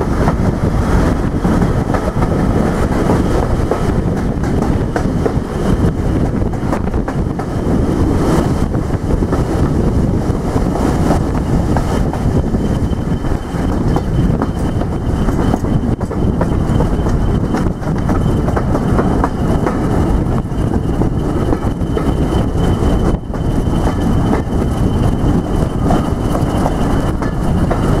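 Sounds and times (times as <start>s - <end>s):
train wheel and rail noise: 0.0s - 28.0s
high whine: 11.3s - 18.7s, 19.9s - 28.0s.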